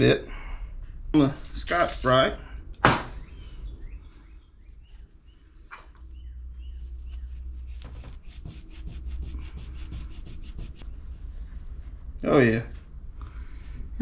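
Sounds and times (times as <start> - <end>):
pad scrubbing metal: 7.3 - 10.8.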